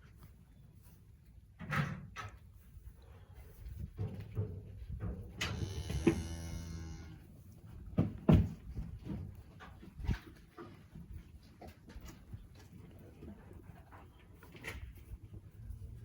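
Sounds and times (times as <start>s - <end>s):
sharp knocks and thumps: 7.9s - 9.4s.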